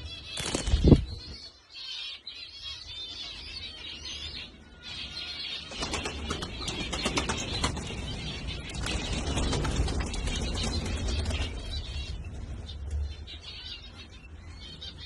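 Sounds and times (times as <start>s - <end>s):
pigeons chirping: 0.0s - 15.0s
pigeon wings flapping: 0.4s - 1.1s, 5.8s - 8.0s, 8.7s - 11.7s.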